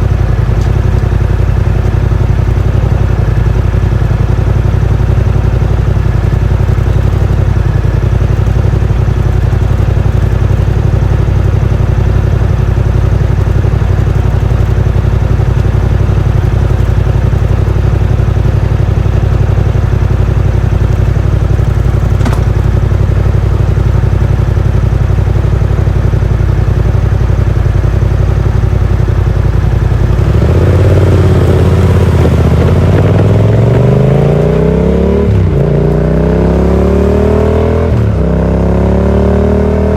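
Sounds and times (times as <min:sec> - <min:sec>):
motorcycle engine idling: 0:00.0 - 0:37.2
motorcycle accelerating away: 0:30.0 - 0:39.9.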